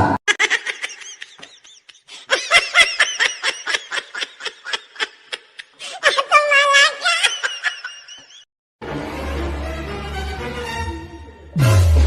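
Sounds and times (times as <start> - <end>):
high-pitched laughter: 0.3 - 8.4.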